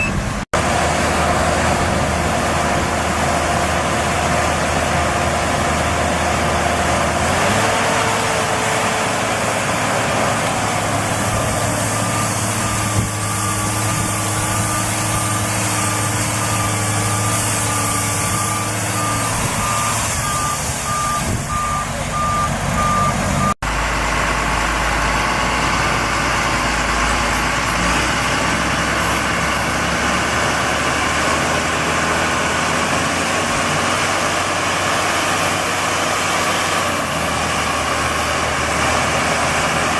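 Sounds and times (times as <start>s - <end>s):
high repeating beep: 0.0s - 0.2s
tractor engines revving: 0.0s - 39.9s.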